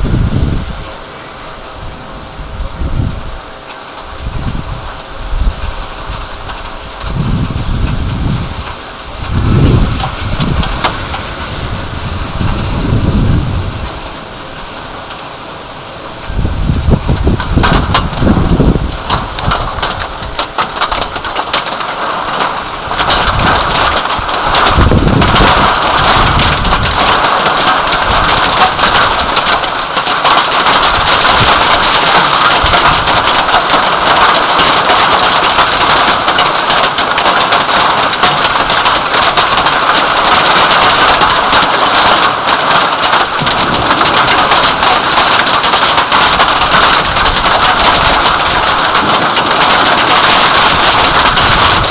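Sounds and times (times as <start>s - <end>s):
low thunder rumbles: 0.0s - 0.9s, 4.3s - 14.2s, 16.2s - 36.4s, 43.2s - 51.9s
heavy rain pouring: 0.0s - 51.9s.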